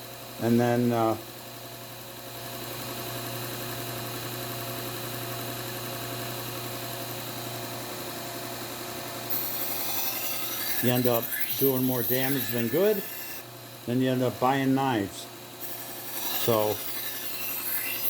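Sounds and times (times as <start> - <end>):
knife blade grinding on belt: 9.3 - 13.4, 15.6 - 18.0
belt sander humming and hissing: 9.3 - 13.5, 15.7 - 18.0.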